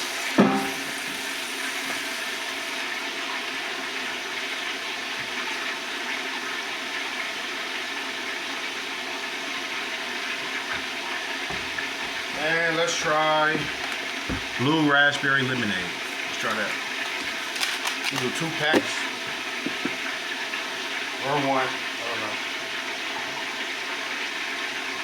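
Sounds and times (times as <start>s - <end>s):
tap water filling pitcher: 0.0s - 25.0s.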